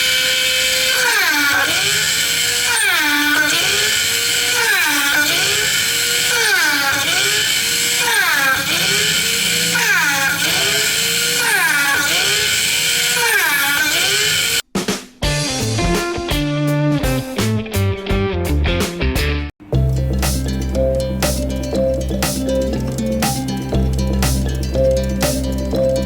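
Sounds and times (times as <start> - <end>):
small electric drill motor whining: 0.0 - 14.6.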